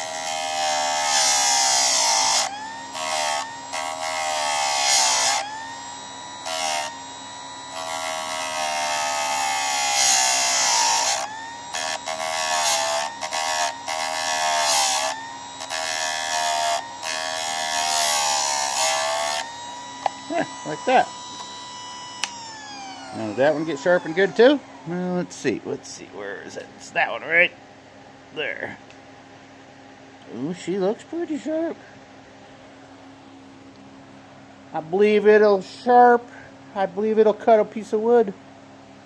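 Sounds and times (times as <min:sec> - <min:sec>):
motor whine: 0:00.0 - 0:27.5.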